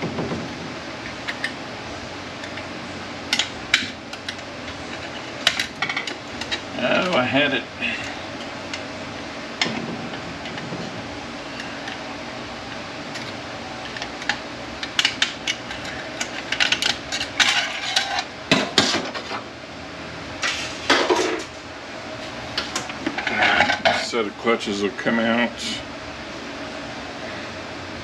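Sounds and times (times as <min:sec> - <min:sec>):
metal parts clinking and scraping: 0:03.3 - 0:07.3, 0:13.1 - 0:18.3.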